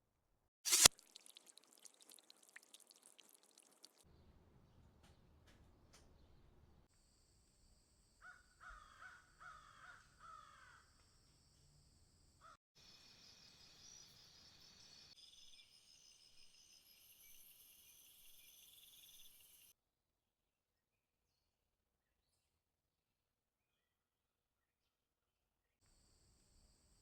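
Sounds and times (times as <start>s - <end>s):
pulsing insect trills and buzzing: 0.7s - 4.0s, 12.8s - 19.7s
high insect hum: 10.3s - 19.7s.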